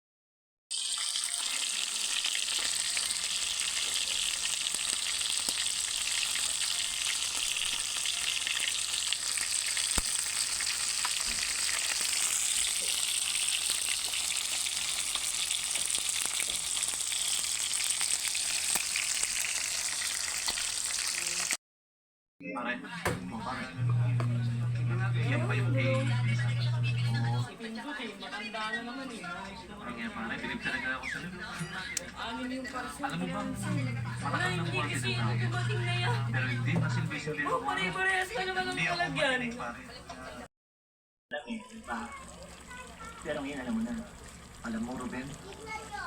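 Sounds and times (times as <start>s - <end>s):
chicken sizzling: 0.7s - 21.6s, 23.8s - 27.5s, 32.4s - 38.6s, 41.6s - 46.0s.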